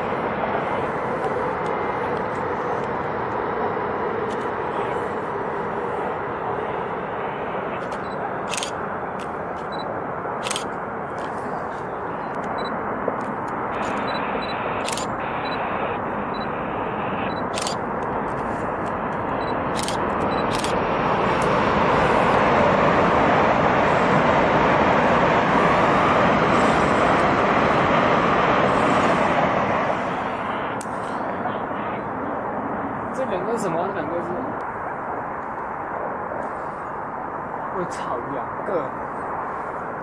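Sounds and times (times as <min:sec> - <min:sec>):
train rushing past: 0:00.0 - 0:36.4
camera shutter clicks: 0:07.8 - 0:08.8.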